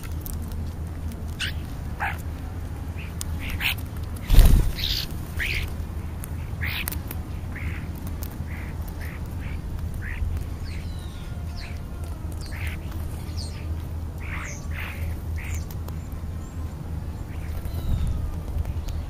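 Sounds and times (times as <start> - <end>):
starlings calling: 1.4 - 2.2, 2.9 - 19.0
low rumble: 4.0 - 6.1.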